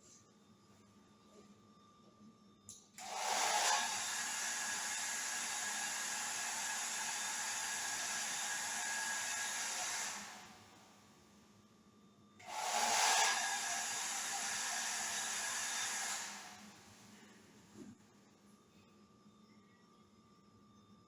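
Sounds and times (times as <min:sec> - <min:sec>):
hair dryer blowing air: 0:03.0 - 0:10.6, 0:12.4 - 0:16.8.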